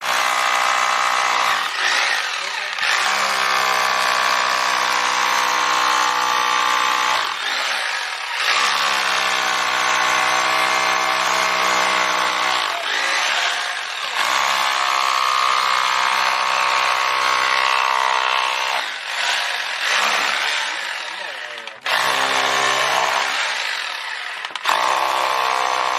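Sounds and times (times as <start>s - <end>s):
rotary hammer drill running: 0.0s - 25.9s.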